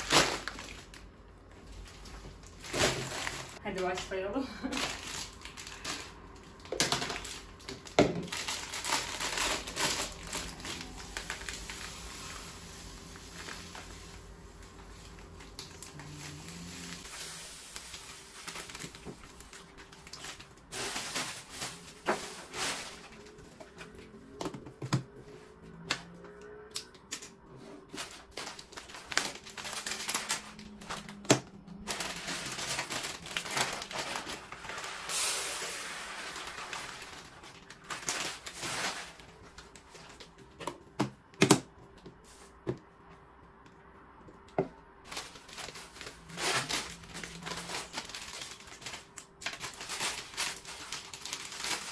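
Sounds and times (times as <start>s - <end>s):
packaging rustling: 4.7s - 24.2s, 27.8s - 40.6s, 45.0s - 51.9s.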